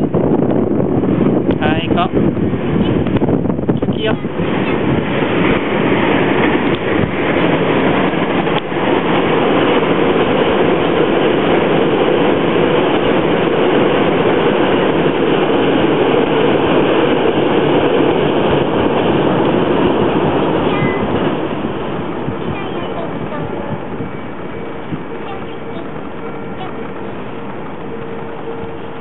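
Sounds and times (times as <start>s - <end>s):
train rumbling on bridge: 0.0s - 29.0s.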